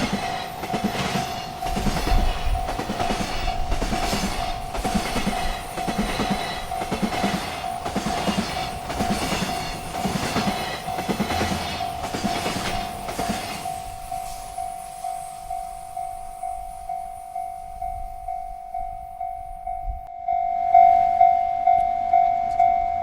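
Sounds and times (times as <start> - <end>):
wheels clicking over rail joints: 0.0 - 14.0
freight train rolling past: 0.0 - 23.0
railroad crossing bell ringing: 0.0 - 23.0.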